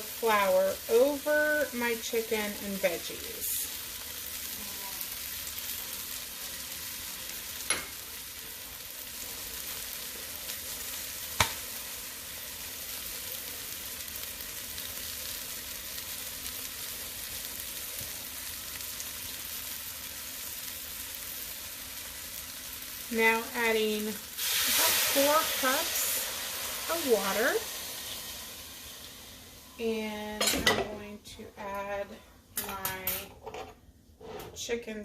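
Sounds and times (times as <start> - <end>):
food sizzling in a pot: 0.0 - 35.0.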